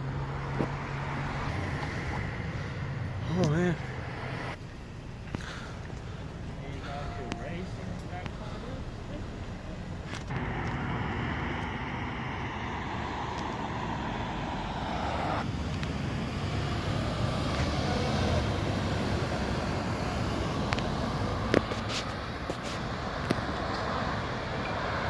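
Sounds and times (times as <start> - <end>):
traffic rumble: 0.0 - 25.0.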